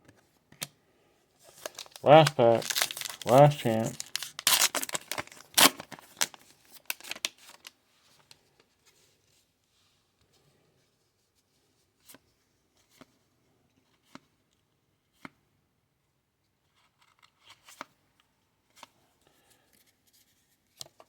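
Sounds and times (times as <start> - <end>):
cards sliding and rustling: 1.4 - 8.3.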